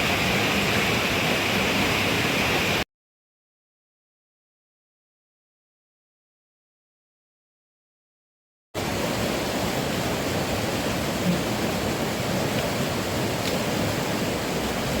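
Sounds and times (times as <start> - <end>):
heavy rain rushing: 8.8 - 15.0.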